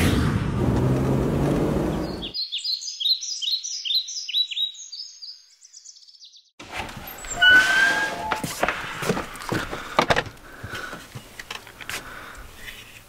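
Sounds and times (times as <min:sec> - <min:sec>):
high downward-sweeping bird chirps: 0:02.0 - 0:06.5
short squeak: 0:07.1 - 0:08.5.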